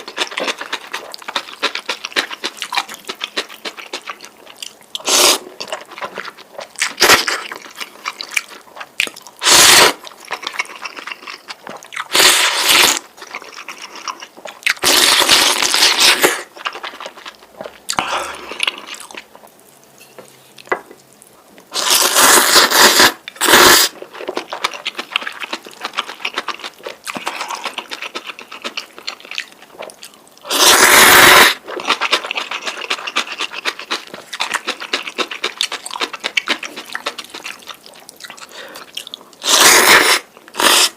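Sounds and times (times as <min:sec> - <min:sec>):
wet chewing: 0:00.0 - 0:19.6, 0:20.2 - 0:40.9
loud noodle slurps: 0:05.0 - 0:05.5, 0:09.4 - 0:10.0, 0:12.1 - 0:13.0, 0:14.8 - 0:16.5, 0:21.8 - 0:24.0, 0:30.4 - 0:31.6, 0:39.4 - 0:40.9.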